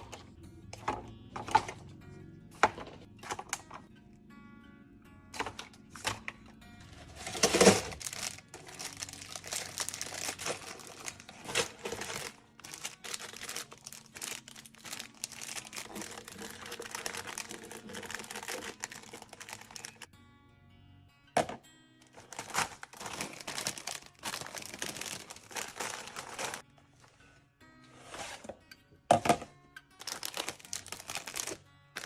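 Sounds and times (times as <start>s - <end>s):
soft music: 0.0s - 32.0s
packaging crinkling and rustling: 6.9s - 20.1s, 22.1s - 26.6s, 30.0s - 32.0s.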